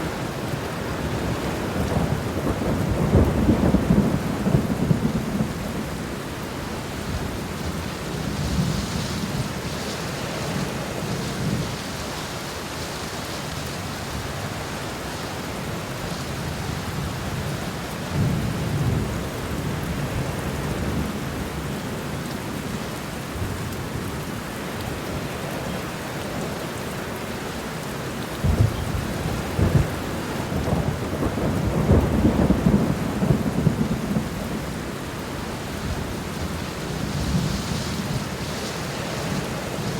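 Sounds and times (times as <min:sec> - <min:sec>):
rolling thunder rumbling: 0:00.0 - 0:11.8, 0:16.4 - 0:21.2, 0:28.4 - 0:39.9
steady rain falling: 0:00.0 - 0:39.9.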